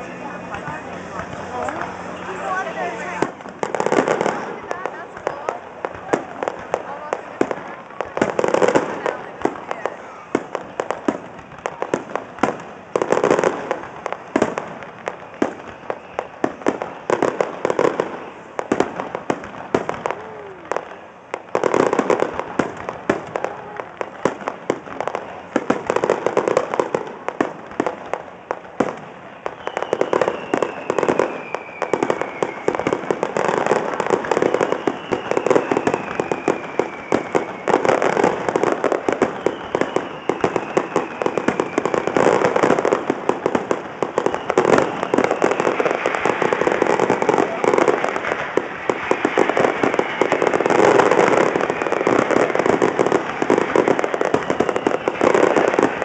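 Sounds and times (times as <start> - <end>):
fireworks crackling and popping: 0.0 - 56.0
firework whistle falling in pitch: 29.4 - 33.0, 34.3 - 38.1, 39.2 - 42.2, 54.2 - 55.6.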